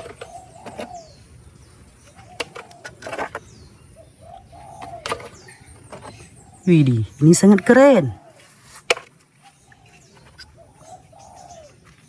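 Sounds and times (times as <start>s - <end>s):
dove-like cooing: 0.0s - 12.0s
faint high bird chirps: 0.0s - 12.0s
plastic toys clicking and knocking: 2.4s - 3.5s.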